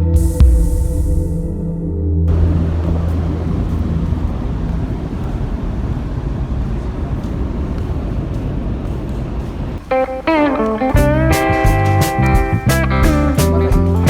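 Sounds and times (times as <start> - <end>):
moving vehicle rumbling: 2.2 - 14.0.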